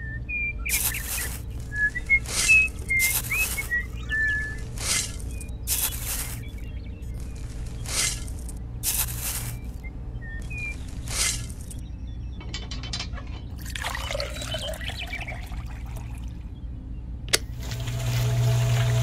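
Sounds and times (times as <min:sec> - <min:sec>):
dry cement mix pouring: 0:17.6 - 0:19.0.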